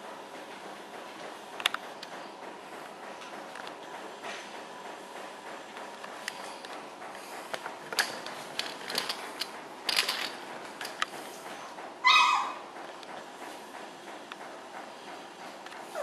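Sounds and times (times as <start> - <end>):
puppy yelping: 12.0 - 12.6.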